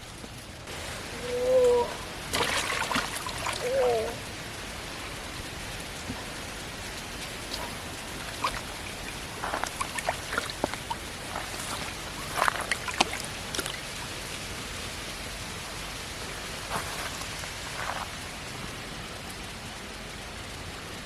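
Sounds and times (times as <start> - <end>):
steady rain falling: 0.0 - 21.0
small splashes and clicks: 0.2 - 20.7.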